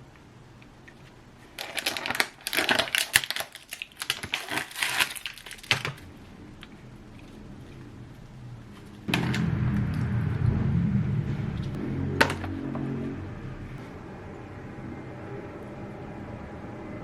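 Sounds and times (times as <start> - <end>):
crinkly rustling: 0.9 - 9.1.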